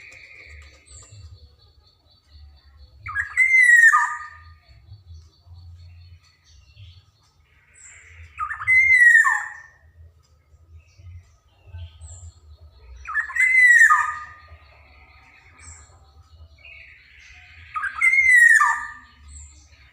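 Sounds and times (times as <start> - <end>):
bird calling harsh and whistled: 3.0 - 4.7, 7.7 - 9.9, 13.0 - 16.0, 16.8 - 19.9.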